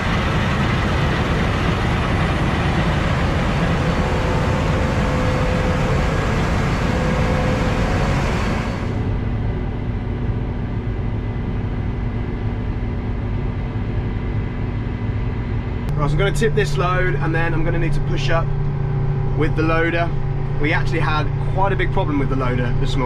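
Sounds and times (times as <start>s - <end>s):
tractor engine drone: 0.0s - 23.0s.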